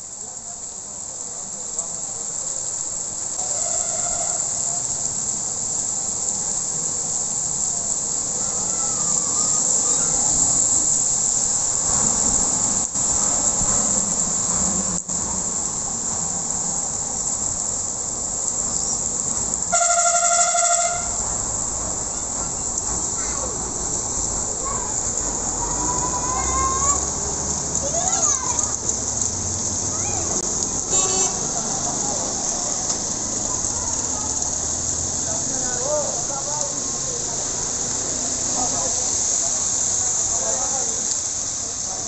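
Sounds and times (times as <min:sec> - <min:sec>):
heavy rain: 0:00.0 - 0:42.0.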